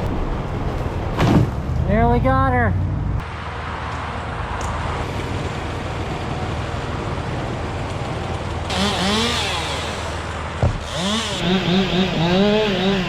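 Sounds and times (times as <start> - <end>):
road traffic passing: 0.0 - 13.0
small engine revving: 8.7 - 13.0.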